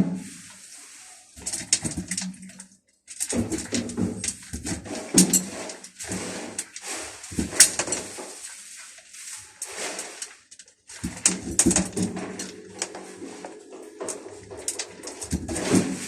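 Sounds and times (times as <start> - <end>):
clicks and clatter: 1.4 - 8.5, 9.6 - 16.0
cats eating: 11.0 - 15.8.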